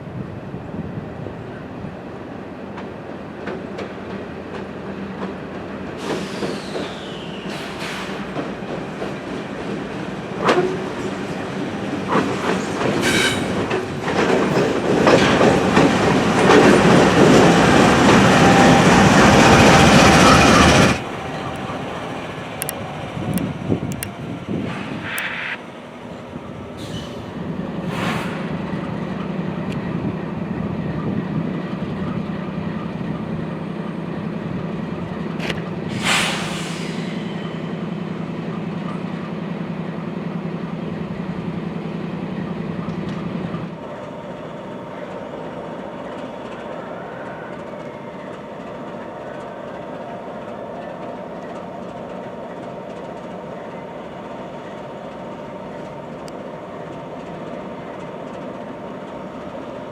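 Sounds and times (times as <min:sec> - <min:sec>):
train rumble: 0:00.0 - 0:59.9
diesel locomotive running: 0:02.8 - 0:59.9
short sharp hisses: 0:06.0 - 0:08.4, 0:24.6 - 0:25.7, 0:26.8 - 0:28.7, 0:35.9 - 0:37.4.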